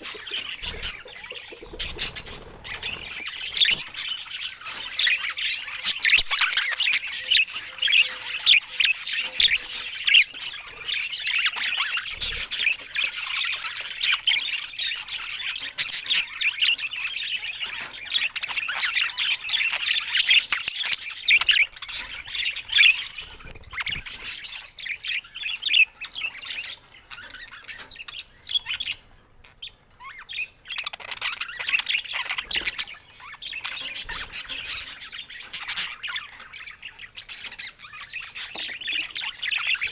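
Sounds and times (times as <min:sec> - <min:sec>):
budgerigar chirps and squawks: 0:00.0 - 0:10.2.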